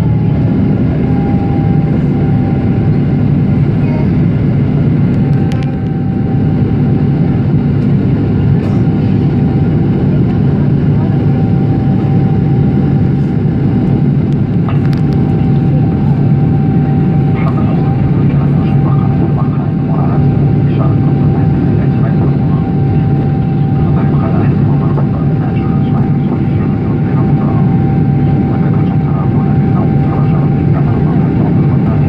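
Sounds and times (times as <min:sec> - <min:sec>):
jet engine hum in aircraft cabin: 0:00.0 - 0:32.0.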